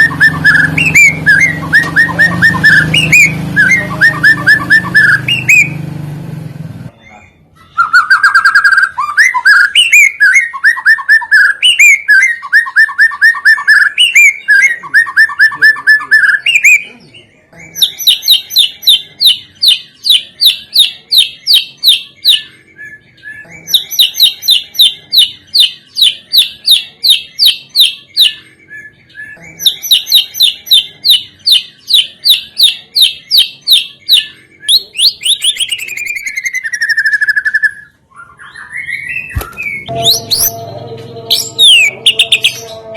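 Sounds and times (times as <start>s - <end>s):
songbird whistled phrases: 0.0s - 5.8s, 7.1s - 16.9s, 17.8s - 40.5s
songbird fast repeated chirps: 29.3s - 40.6s.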